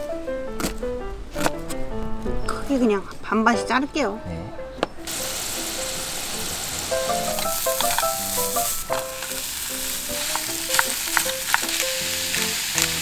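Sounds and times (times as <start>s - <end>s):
light background music: 0.0s - 13.0s
food sizzling in a pan: 5.0s - 13.0s
utensil clicking against pan: 6.9s - 13.0s.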